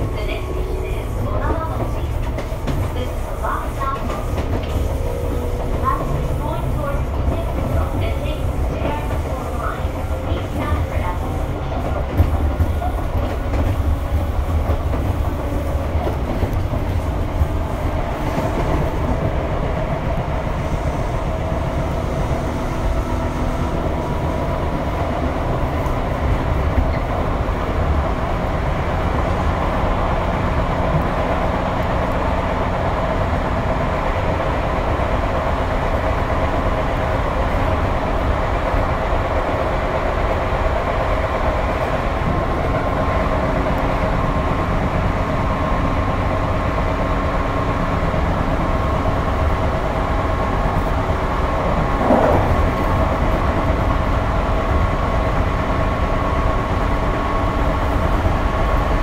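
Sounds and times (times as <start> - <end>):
clacks over rail joints: 0.0 - 20.3, 50.2 - 55.2
train wheels rumbling on rail: 0.0 - 59.0.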